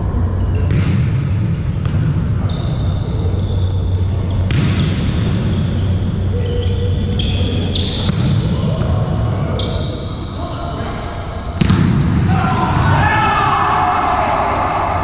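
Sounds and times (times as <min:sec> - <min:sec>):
volleyball smacks with echo: 0:00.6 - 0:02.3, 0:08.0 - 0:09.0, 0:11.6 - 0:12.3.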